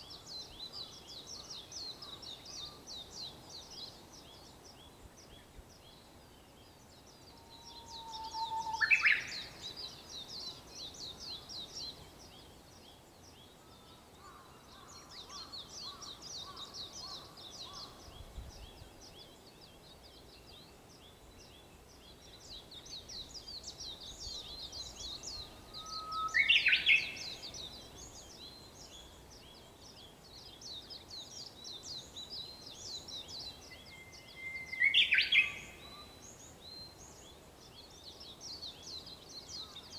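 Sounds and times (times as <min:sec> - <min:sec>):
small birds twittering: 0:00.0 - 0:39.9
bush warbler singing: 0:06.6 - 0:13.0, 0:15.2 - 0:39.9.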